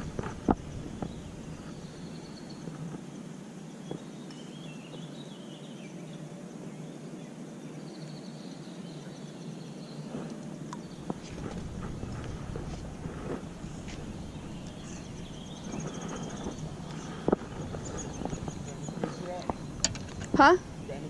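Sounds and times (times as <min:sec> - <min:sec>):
outdoor background noise: 0:00.0 - 0:21.0
high wavering bird chirps: 0:10.8 - 0:21.0.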